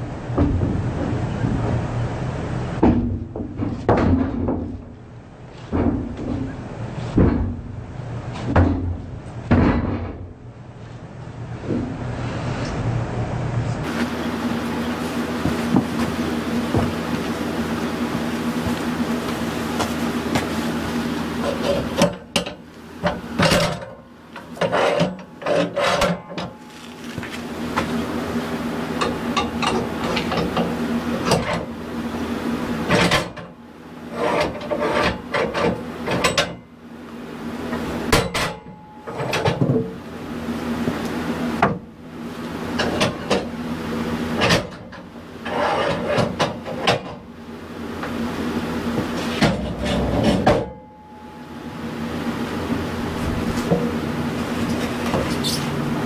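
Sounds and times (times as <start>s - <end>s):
low engine hum: 0.0s - 24.6s, 47.1s - 56.0s
wooden boards knocking and scraping: 2.8s - 4.9s, 5.6s - 7.6s.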